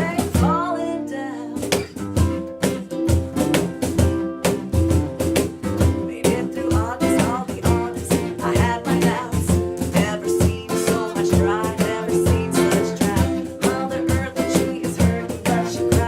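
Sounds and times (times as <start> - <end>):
steady drum beat: 0.0 - 0.6, 1.7 - 16.0
guitar: 0.0 - 16.0.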